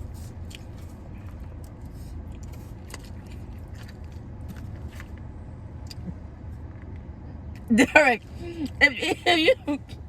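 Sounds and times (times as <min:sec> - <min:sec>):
person chewing food: 0:00.3 - 0:05.2.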